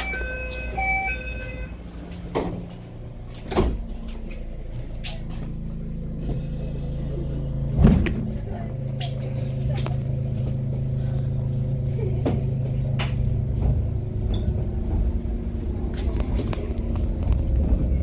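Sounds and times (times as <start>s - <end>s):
short beeping tones: 0.0s - 1.8s
train interior hum: 0.0s - 18.0s.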